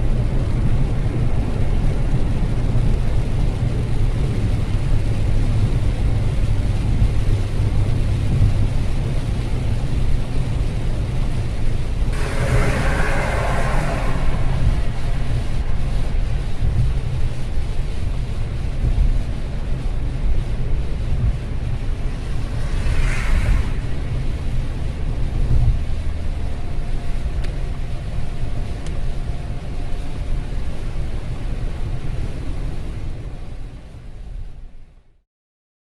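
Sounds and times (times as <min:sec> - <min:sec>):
car road noise on wet road: 0:00.0 - 0:34.9
brief whoosh: 0:12.1 - 0:17.3, 0:21.9 - 0:25.5.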